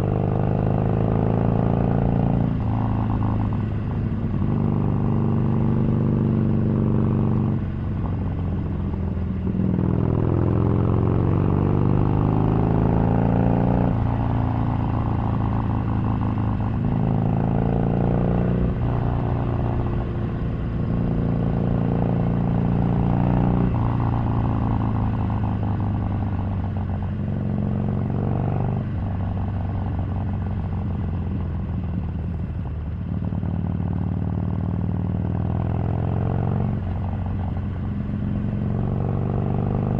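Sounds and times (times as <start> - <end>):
motorcycle engine revving: 9.4 - 39.9.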